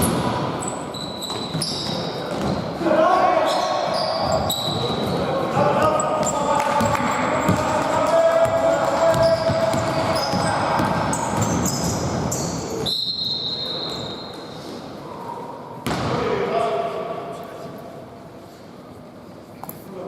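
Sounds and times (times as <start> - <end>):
court background noise: 0.0 - 20.0
basketball bouncing on court: 1.3 - 2.7, 4.2 - 12.4.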